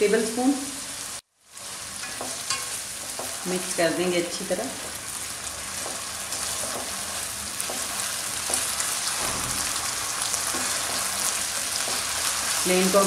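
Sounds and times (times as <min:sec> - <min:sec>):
vegetables and meat sizzling in pan: 0:00.0 - 0:13.0
spatula scraping a pan: 0:04.8 - 0:12.6.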